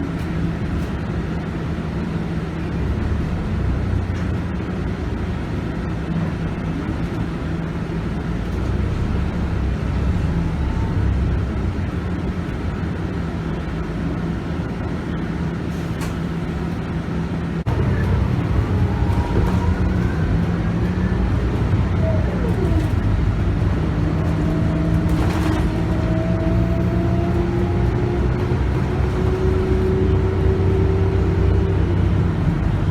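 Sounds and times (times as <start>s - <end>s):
bus diesel engine running: 0.0s - 32.9s
rising whine: 17.7s - 25.0s.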